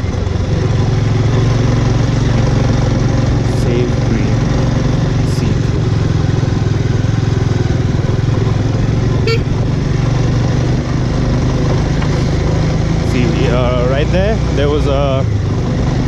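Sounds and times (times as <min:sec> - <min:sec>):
motorcycle engine running: 0:00.0 - 0:16.0
vehicle horn beep: 0:09.2 - 0:09.6.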